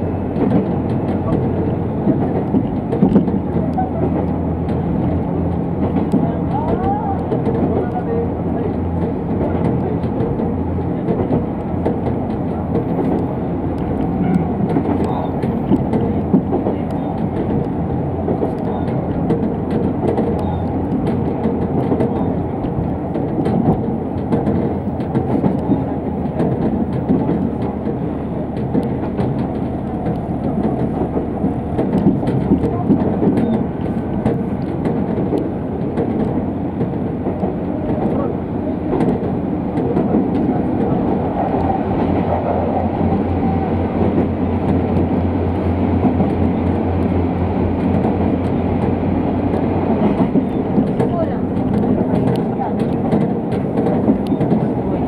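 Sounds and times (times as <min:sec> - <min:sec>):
railcar wheels and engine rumble: 0:00.0 - 0:55.0
faint clicks: 0:28.6 - 0:38.1.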